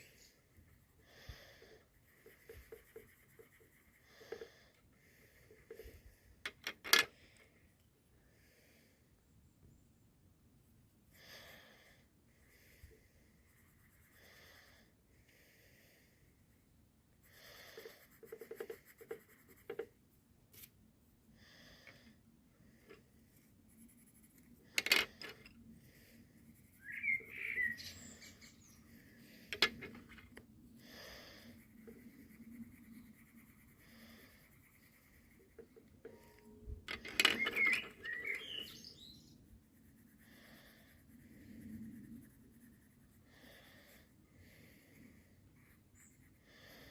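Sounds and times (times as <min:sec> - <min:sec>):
pencils scratching on paper: 0:00.0 - 0:06.9, 0:12.9 - 0:14.8, 0:17.2 - 0:20.0, 0:22.8 - 0:27.8, 0:28.5 - 0:46.9.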